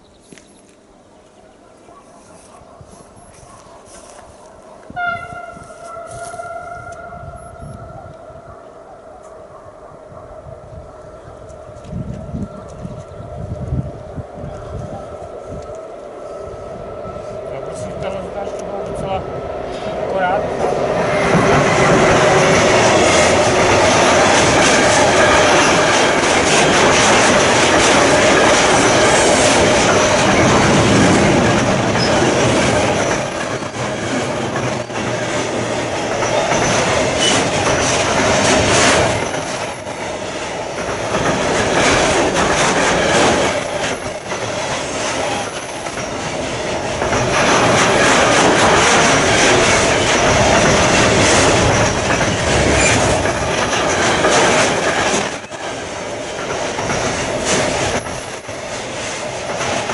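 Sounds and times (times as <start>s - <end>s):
vehicle rumbling and rattling: 46.8s - 55.5s.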